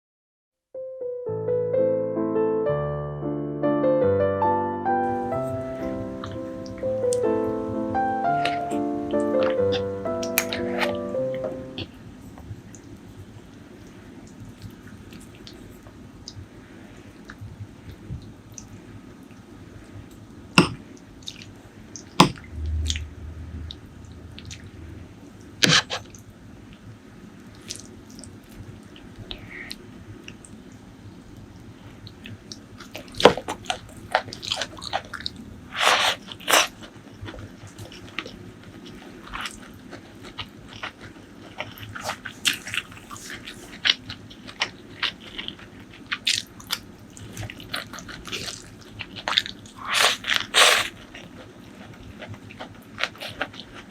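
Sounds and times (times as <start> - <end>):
chewing and biting: 32.0 - 53.9.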